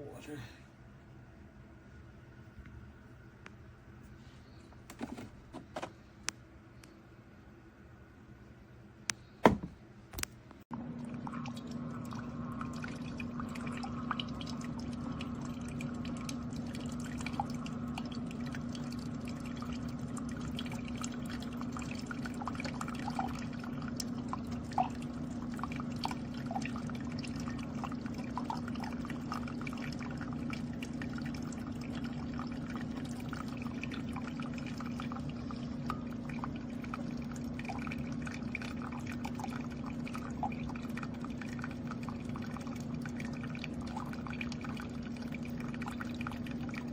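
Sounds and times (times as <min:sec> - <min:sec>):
coffee maker pump humming: 0:02.0 - 0:07.0, 0:08.5 - 0:46.9
coffee streaming into cup: 0:04.9 - 0:06.0, 0:10.7 - 0:46.9.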